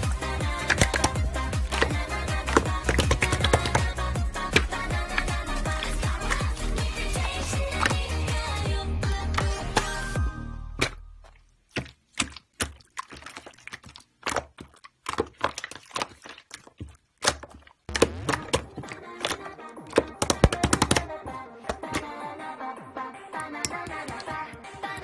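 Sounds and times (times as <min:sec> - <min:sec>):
background music: 0:00.0 - 0:11.2, 0:17.9 - 0:25.0
slime clicking and popping: 0:00.5 - 0:08.2, 0:11.7 - 0:22.1.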